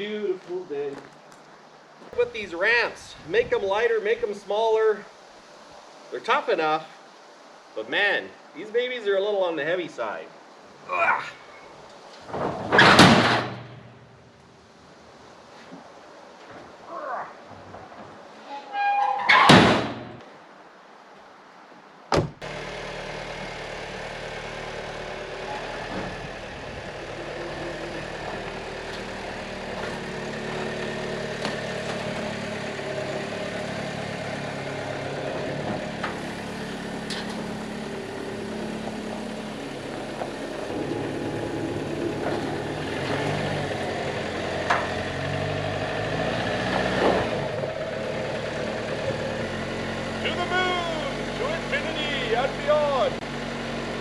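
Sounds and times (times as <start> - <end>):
car engine starting and running: 22.3 - 54.0.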